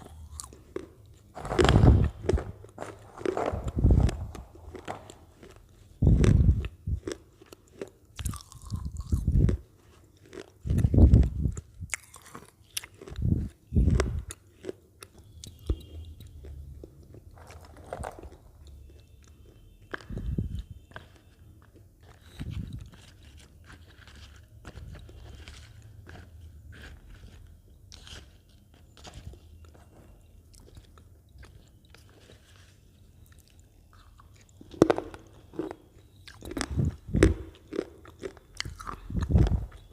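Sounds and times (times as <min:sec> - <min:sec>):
potato chips crunching: 0:00.0 - 0:29.4, 0:30.5 - 0:39.9.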